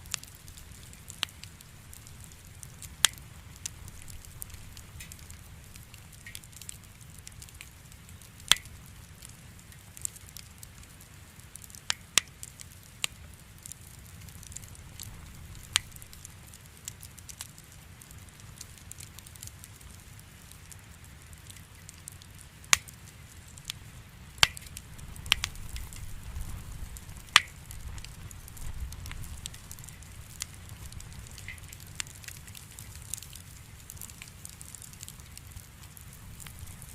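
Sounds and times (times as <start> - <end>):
low fire rumble: 0.0 - 36.9
wood fire popping and crackling: 0.0 - 36.9.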